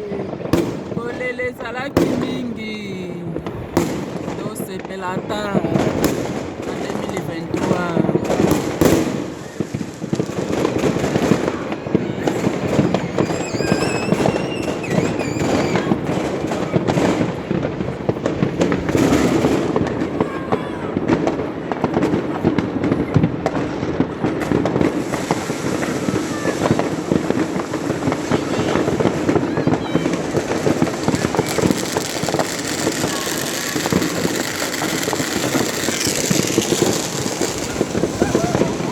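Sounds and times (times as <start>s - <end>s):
fireworks bangs and crackles: 0.0s - 38.9s
firework whistling: 3.4s - 17.3s, 24.4s - 38.9s.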